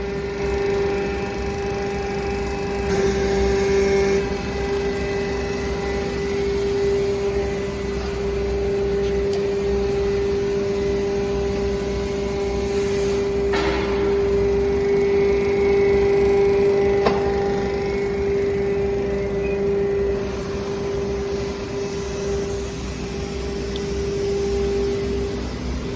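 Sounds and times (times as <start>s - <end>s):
hydraulic power pack whining: 0.0s - 24.7s
sharp knock: 13.5s - 14.4s.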